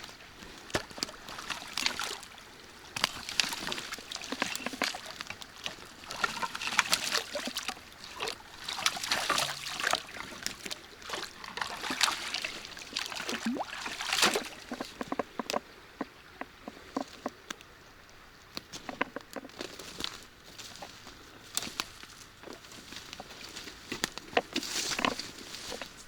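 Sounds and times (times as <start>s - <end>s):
water splashing and sloshing: 0.0s - 17.6s, 18.8s - 26.0s
crackles and knocks: 2.9s - 13.4s, 14.4s - 17.7s, 18.5s - 20.2s, 21.5s - 26.0s.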